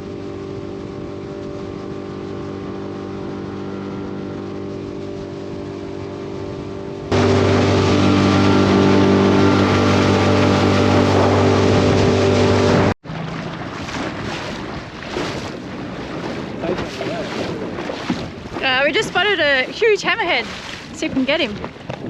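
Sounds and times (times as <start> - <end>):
outboard motor running: 0.0 - 22.0
water noise: 0.0 - 22.0
wind noise: 13.6 - 22.0.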